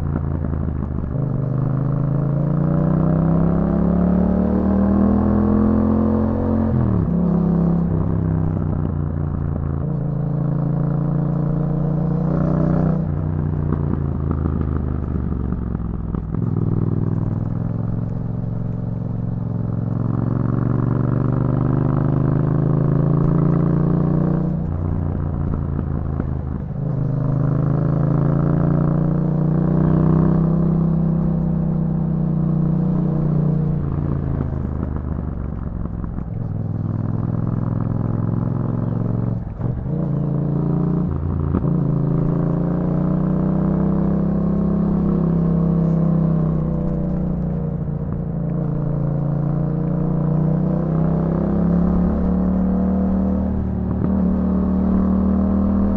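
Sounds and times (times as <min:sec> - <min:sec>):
motorcycle engine revving: 0:00.0 - 0:55.9
gear shifts: 0:44.2 - 0:50.5.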